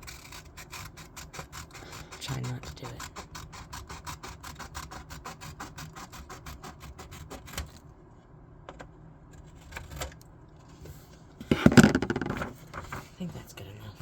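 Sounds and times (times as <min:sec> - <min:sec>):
drawing tool scribbling on paper: 0:00.0 - 0:07.6.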